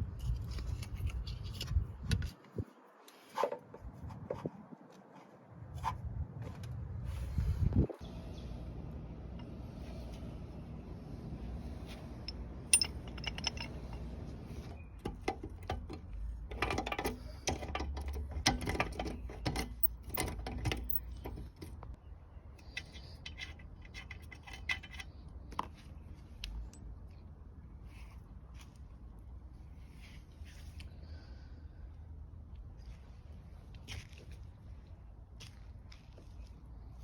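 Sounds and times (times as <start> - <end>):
metal tools clinking: 12.2 - 21.8, 22.6 - 25.2.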